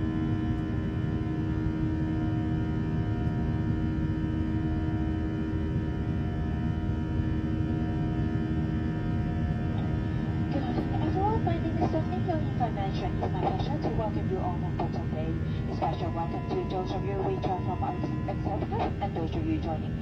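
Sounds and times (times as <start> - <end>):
constant hum tones: 0.0 - 20.0
engine and airflow rush: 7.4 - 20.0.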